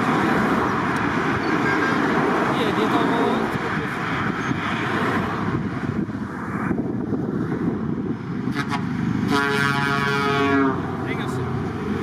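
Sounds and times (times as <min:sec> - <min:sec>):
passing truck engines: 0:00.0 - 0:12.0
truck air horn blast: 0:08.5 - 0:10.9.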